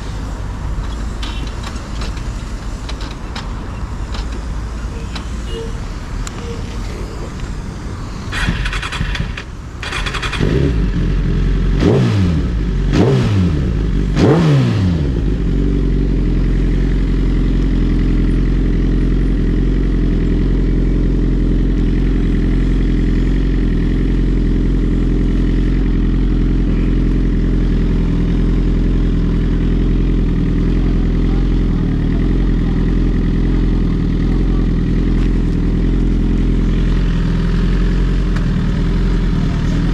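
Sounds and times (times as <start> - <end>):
motorcycle engine accelerating: 7.0 - 39.9.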